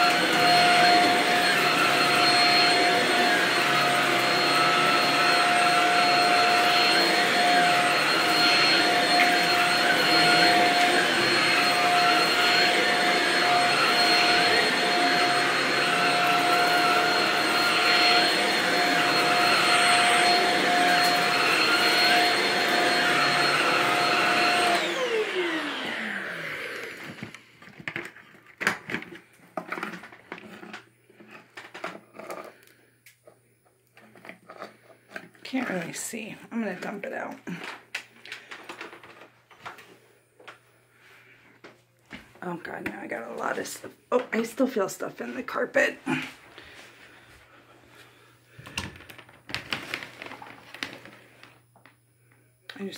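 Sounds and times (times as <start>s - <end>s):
vacuum cleaner running on carpet: 0.0s - 27.5s, 34.0s - 37.6s, 42.4s - 51.6s.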